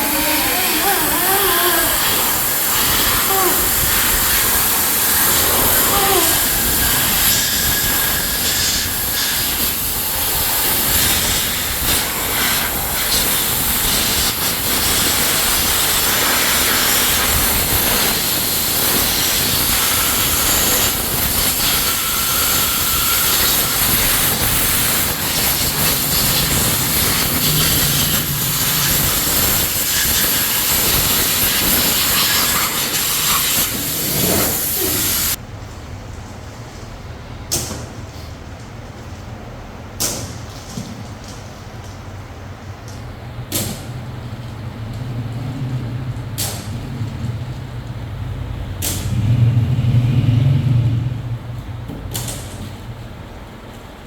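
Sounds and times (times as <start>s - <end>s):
machinery hiss: 0.0s - 35.4s.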